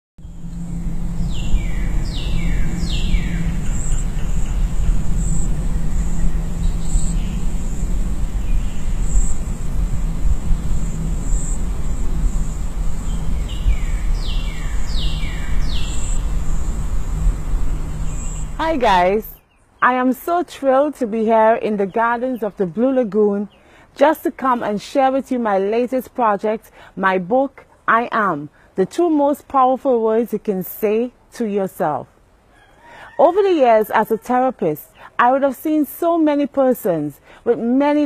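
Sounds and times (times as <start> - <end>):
high insect drone: 0.2 - 19.4
loud low rumble: 0.2 - 19.4
bird whistling falling notes: 0.6 - 7.7.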